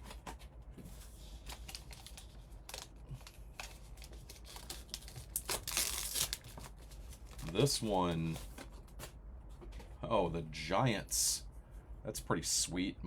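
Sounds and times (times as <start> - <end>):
packaging being torn open: 1.5 - 7.6.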